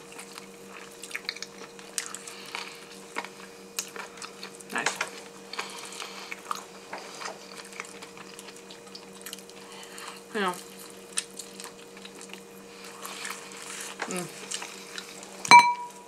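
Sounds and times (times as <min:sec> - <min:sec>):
people chewing and lip smacking: 0:00.0 - 0:15.5
steady low hum: 0:00.0 - 0:16.0.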